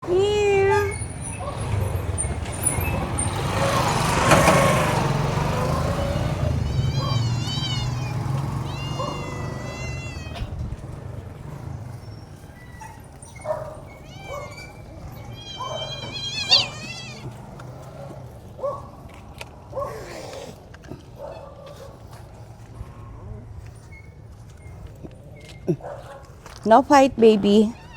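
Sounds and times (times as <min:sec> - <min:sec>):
cats meowing: 0:05.7 - 0:11.0, 0:12.4 - 0:17.9, 0:27.5 - 0:27.9.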